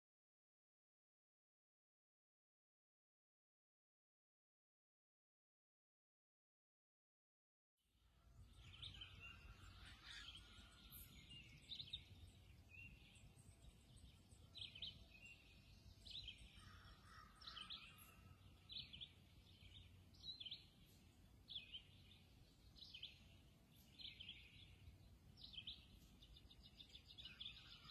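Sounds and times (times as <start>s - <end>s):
songbird chirping: 8.0s - 27.9s.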